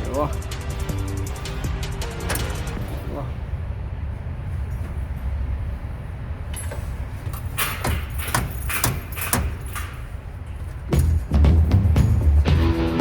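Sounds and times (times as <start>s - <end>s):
steady low hum: 0.0s - 13.0s
metal tools clinking: 6.5s - 11.2s.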